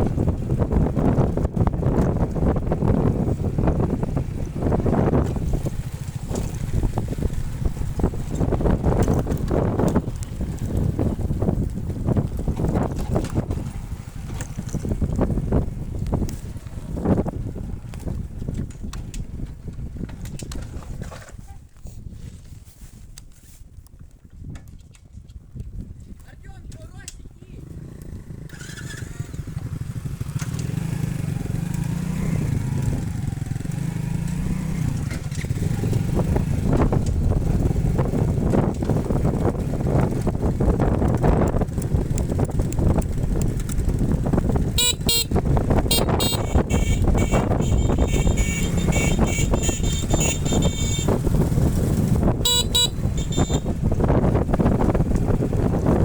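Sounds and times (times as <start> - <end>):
motorcycle engine running: 0.0 - 20.1, 27.6 - 56.0
wind: 0.0 - 56.0
vehicle horn tooting: 44.8 - 51.3, 52.4 - 53.8.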